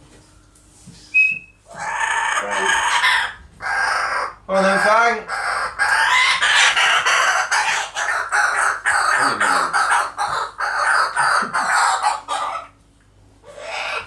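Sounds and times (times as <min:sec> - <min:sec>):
kookaburra laughing call: 0:05.3 - 0:12.7, 0:13.5 - 0:14.0.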